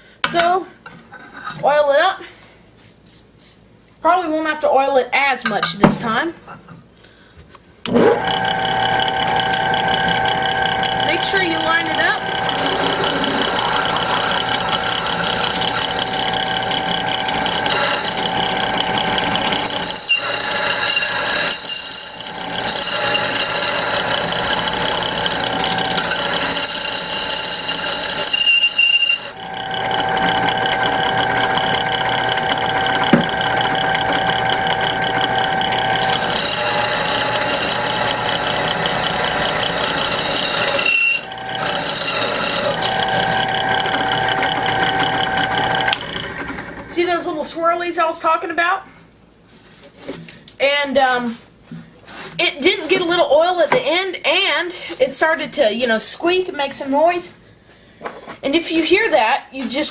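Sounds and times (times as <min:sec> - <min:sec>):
drill bit squeaking: 0:07.9 - 0:46.6
drill press motor whine: 0:07.9 - 0:47.0.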